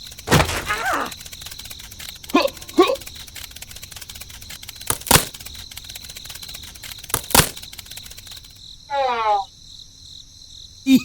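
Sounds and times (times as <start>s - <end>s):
fast ticking: 0.0s - 8.6s
sharp cracks: 0.0s - 8.6s.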